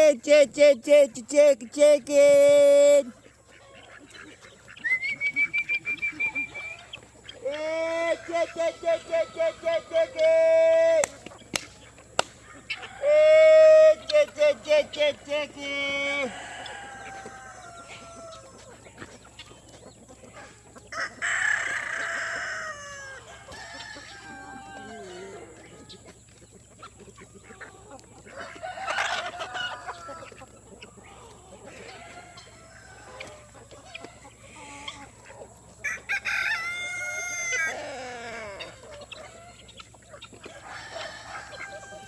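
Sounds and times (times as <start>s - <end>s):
chickens clucking: 0.0s - 42.0s
rooster crowing: 16.0s - 18.6s, 20.9s - 26.0s, 28.3s - 30.4s, 31.7s - 34.2s, 35.8s - 39.6s, 40.4s - 42.0s.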